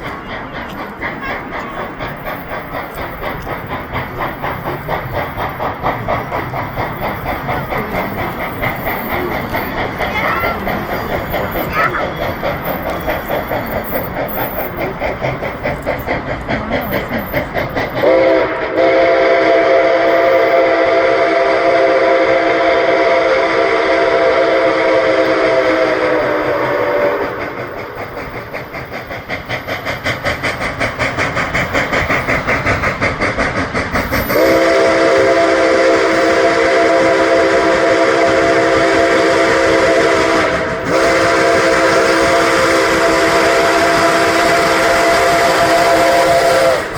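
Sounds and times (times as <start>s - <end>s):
steam locomotive exhaust beats: 0.0s - 46.9s
steam whistle chord: 18.0s - 27.3s, 34.3s - 46.9s.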